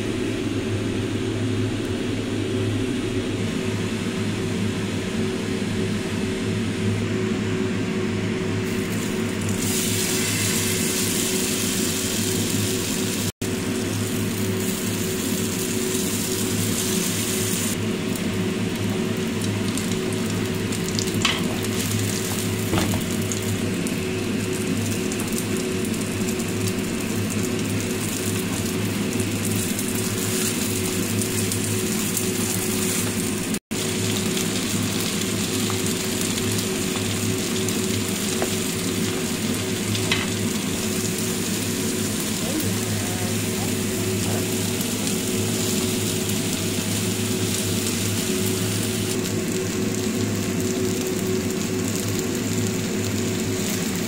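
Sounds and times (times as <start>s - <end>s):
pancake sizzling in a pan: 8.7s - 17.8s.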